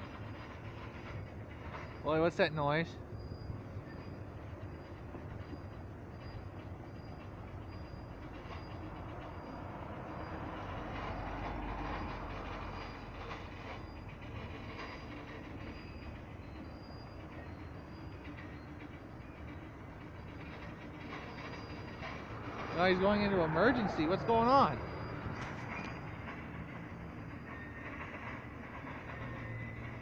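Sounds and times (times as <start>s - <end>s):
freight train brakes grinding and squealing: 0.0s - 30.0s.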